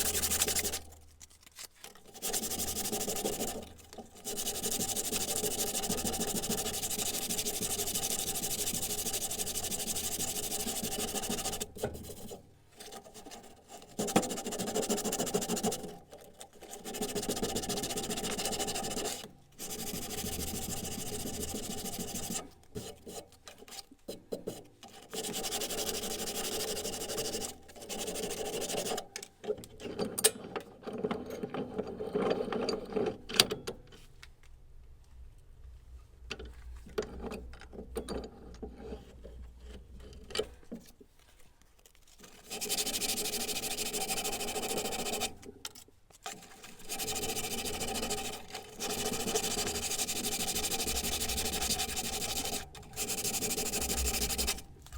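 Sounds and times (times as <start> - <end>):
file rasping on steel: 0.0 - 0.9, 2.1 - 15.9, 46.8 - 54.7.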